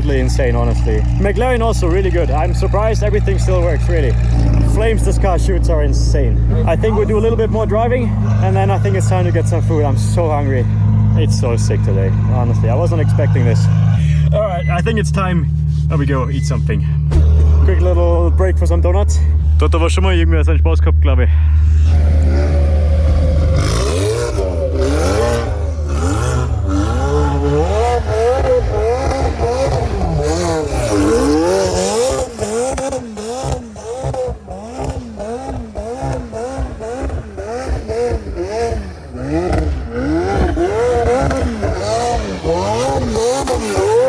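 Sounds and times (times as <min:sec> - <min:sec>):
car engine revving: 0:00.0 - 0:44.0.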